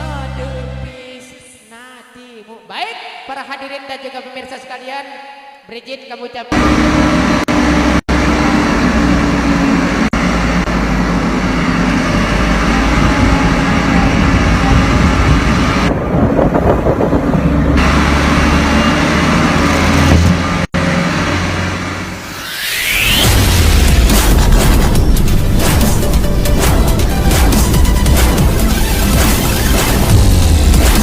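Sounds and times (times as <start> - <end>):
road and cab noise: 6.5 - 31.0
truck engine drone from cab: 6.5 - 31.0.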